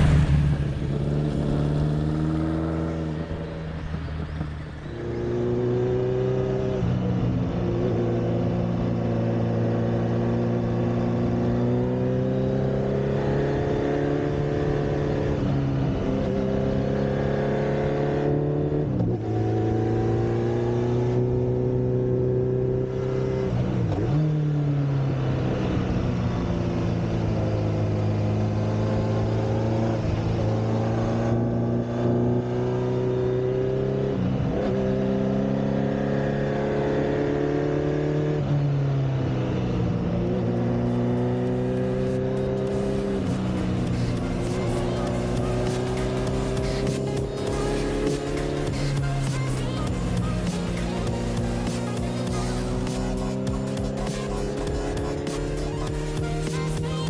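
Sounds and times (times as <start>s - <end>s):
motorcycle engine through gears: 0.0s - 38.6s, 39.2s - 57.0s.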